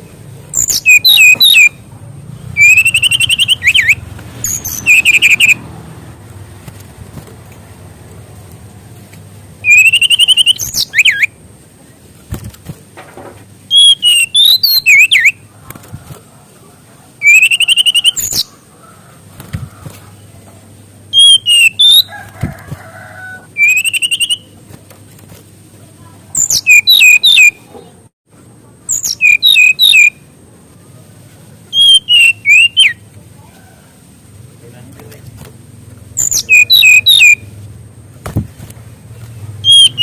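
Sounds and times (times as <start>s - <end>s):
bird singing whistled trills: 0.5s - 1.8s, 2.6s - 5.6s, 9.6s - 11.4s, 13.7s - 15.4s, 17.2s - 18.5s, 21.1s - 22.1s, 23.6s - 24.5s, 26.4s - 27.6s, 28.9s - 30.2s, 31.7s - 33.0s, 36.2s - 37.5s, 39.6s - 40.0s.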